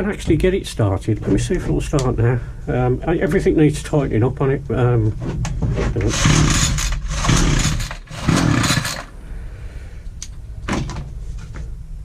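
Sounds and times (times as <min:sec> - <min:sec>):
engine pull-start cranking: 0:06.0 - 0:09.1.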